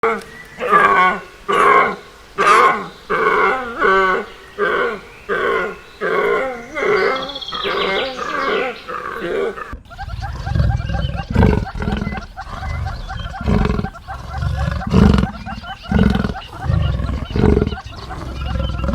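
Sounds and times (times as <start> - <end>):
deep low growls: 6.3 - 18.9.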